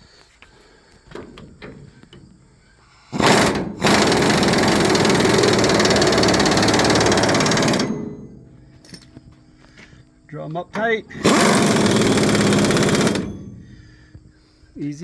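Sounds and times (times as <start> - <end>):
impact wrench hammering: 3.2 - 9.1, 11.1 - 13.7.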